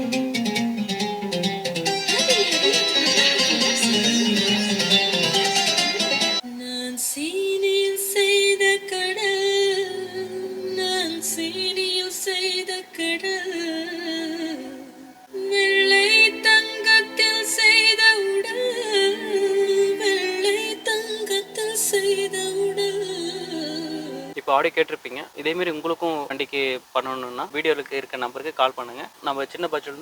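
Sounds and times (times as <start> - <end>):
song on car speakers: 0.0 - 6.4.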